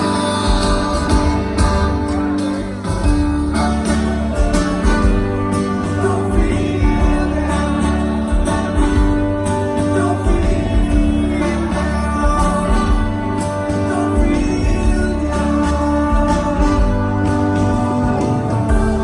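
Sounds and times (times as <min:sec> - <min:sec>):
acoustic guitar: 0:00.0 - 0:19.0
person singing: 0:00.0 - 0:19.0.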